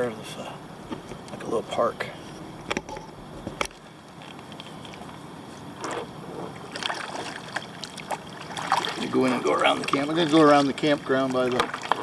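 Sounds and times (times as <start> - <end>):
paddle splashing through water: 6.5 - 12.0.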